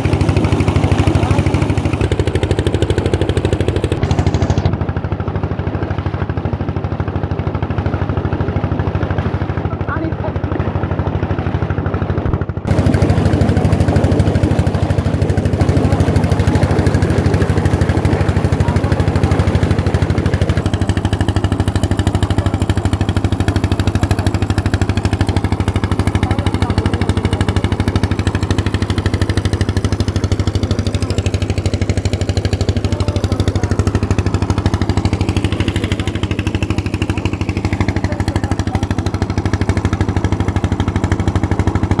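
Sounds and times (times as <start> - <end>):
old engine driving water pump: 0.0 - 42.0.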